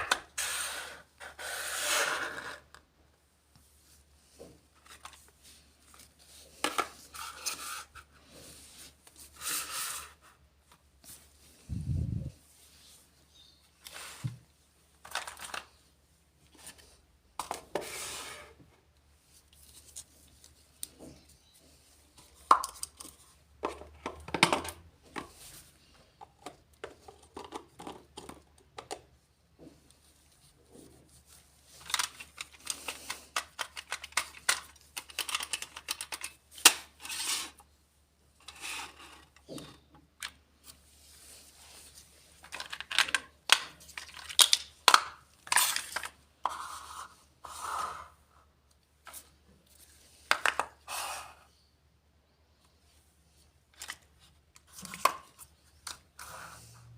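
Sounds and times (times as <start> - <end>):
plastic toy pieces clicking: 31.9 - 36.4.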